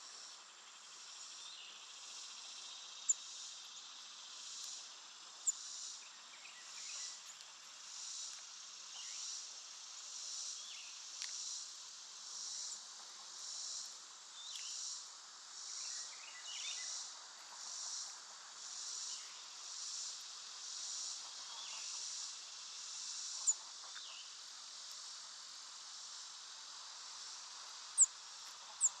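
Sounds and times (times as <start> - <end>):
insects singing: 0.0 - 12.9, 27.2 - 29.0.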